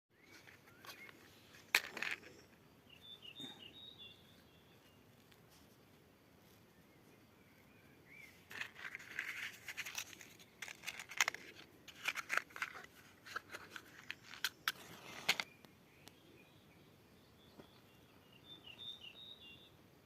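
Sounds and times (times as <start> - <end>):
birds chirping faintly: 0.1 - 20.0
dry wood crackling and snapping: 8.5 - 15.5.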